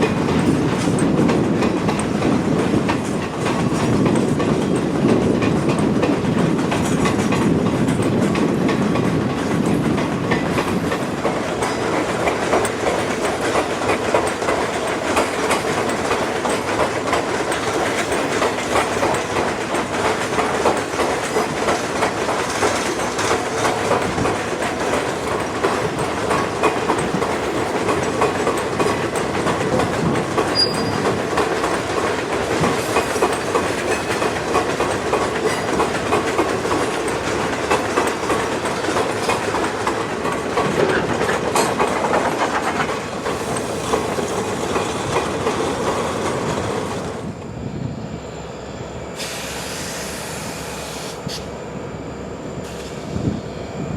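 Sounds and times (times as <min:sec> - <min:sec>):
wheels clicking over rail joints: 0:00.0 - 0:47.2
freight train rolling past: 0:00.0 - 0:53.9.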